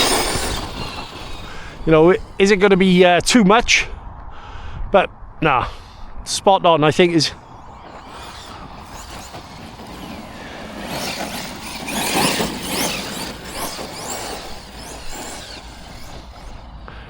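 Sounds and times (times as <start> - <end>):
rc truck motor whining: 0.0 - 3.0, 7.0 - 17.0.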